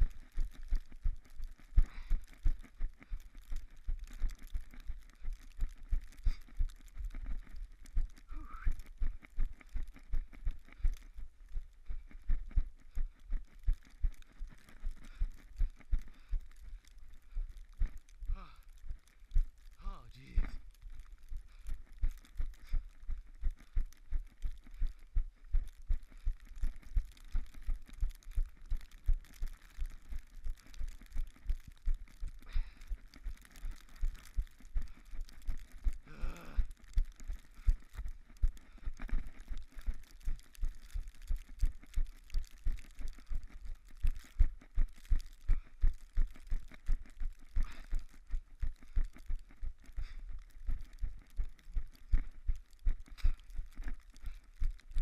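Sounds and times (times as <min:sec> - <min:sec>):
running footsteps crunching snow: 0:00.0 - 0:55.0.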